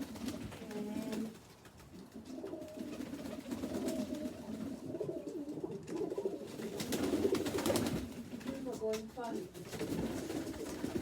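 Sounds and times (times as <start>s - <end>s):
pigeons cooing: 2.0s - 7.7s.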